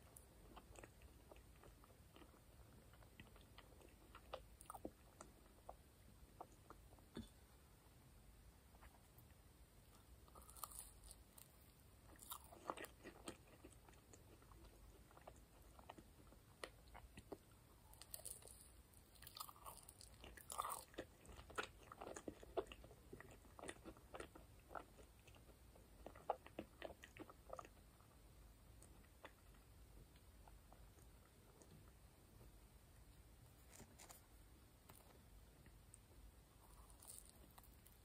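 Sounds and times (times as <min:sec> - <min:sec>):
chewing marshmallow: 0:00.0 - 0:07.0, 0:09.9 - 0:31.8, 0:36.6 - 0:38.0.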